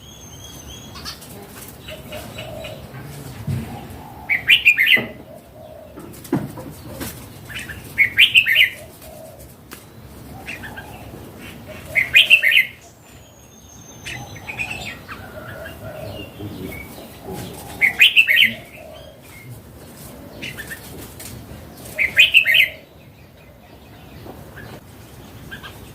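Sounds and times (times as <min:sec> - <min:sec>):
bird chattering song: 0:00.0 - 0:06.0, 0:06.6 - 0:25.9
faint bird calls: 0:00.0 - 0:09.5, 0:10.2 - 0:24.8.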